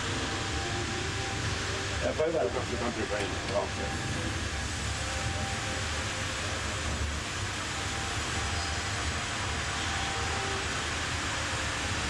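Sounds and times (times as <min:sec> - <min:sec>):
bandsaw machinery humming and hissing: 0:00.0 - 0:12.0.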